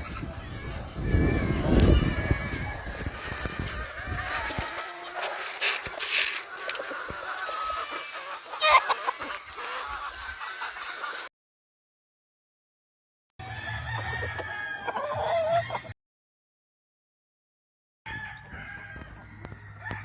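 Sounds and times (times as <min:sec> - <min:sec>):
roosters crowing and clucking: 0:00.0 - 0:11.3, 0:13.4 - 0:15.9, 0:18.1 - 0:20.0.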